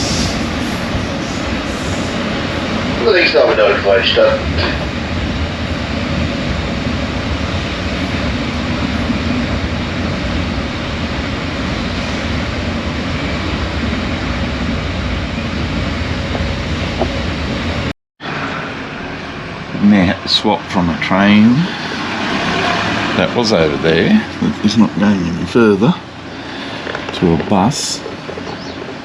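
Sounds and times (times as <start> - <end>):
train rumble and hiss: 0.0 - 29.0.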